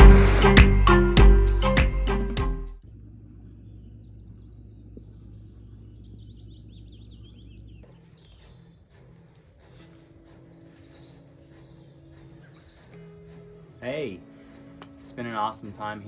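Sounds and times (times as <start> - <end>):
low steady hum: 0.0 - 1.7
birds chirping: 3.4 - 15.7.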